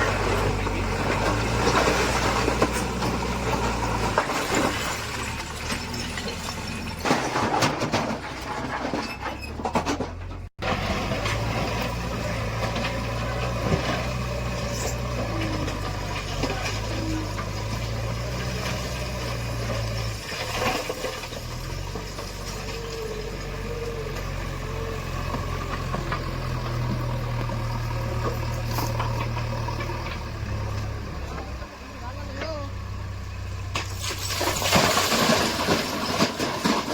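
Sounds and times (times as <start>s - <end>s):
heavy diesel engine running: 0.0s - 7.7s, 10.1s - 36.9s
knocks and clanks: 0.0s - 23.1s, 33.7s - 36.9s.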